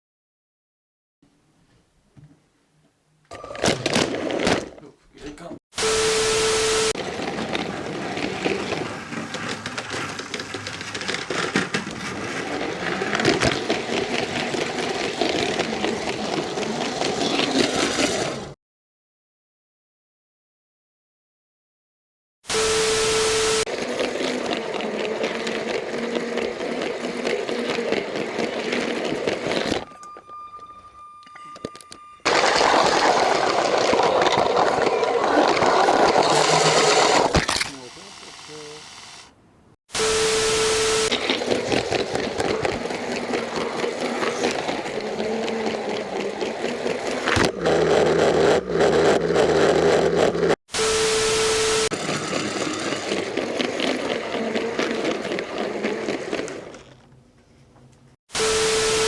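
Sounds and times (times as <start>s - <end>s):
toy train motor whirring: 6.2s - 18.5s, 22.7s - 39.3s, 40.0s - 57.0s
plastic wheels rattling on track: 7.0s - 18.6s, 23.6s - 30.7s, 31.4s - 38.8s, 41.0s - 50.6s, 51.8s - 57.2s.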